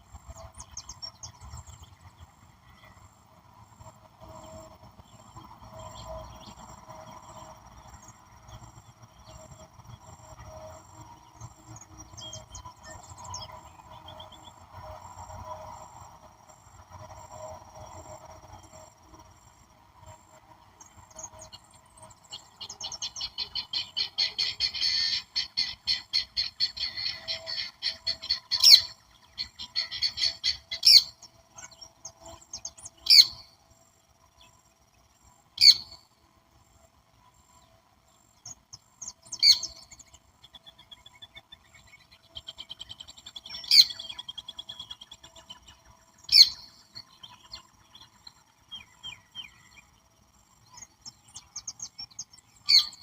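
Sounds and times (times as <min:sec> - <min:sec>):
faint insect drone: 0:00.0 - 0:53.0
sharp bird calls: 0:22.3 - 0:33.5, 0:35.6 - 0:36.0, 0:38.4 - 0:49.8, 0:50.8 - 0:53.0.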